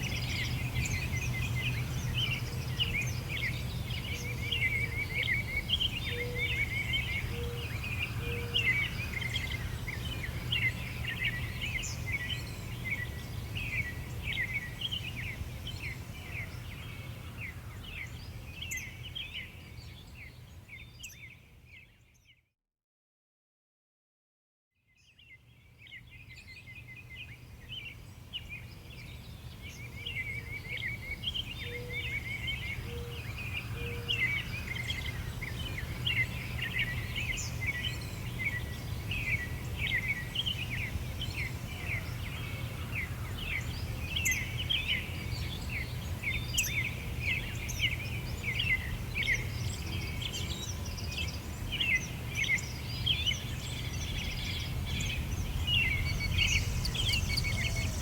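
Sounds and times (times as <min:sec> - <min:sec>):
songbirds chirping and trilling: 0:00.0 - 0:22.4, 0:25.0 - 0:58.0
low background rumble: 0:54.3 - 0:58.0.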